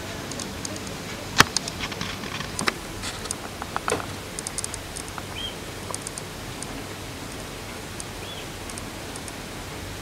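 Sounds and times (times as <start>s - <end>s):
raindrops ticking and pattering: 0.0s - 10.0s
steady hiss: 0.0s - 10.0s.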